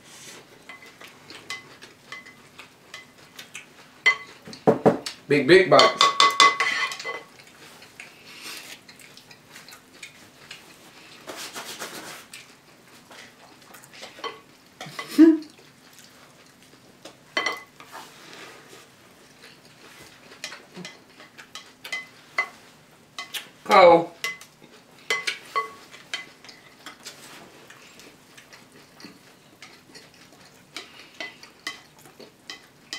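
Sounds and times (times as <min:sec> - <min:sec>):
spoons clinking in bowls: 0:05.8 - 0:07.4, 0:25.1 - 0:26.6.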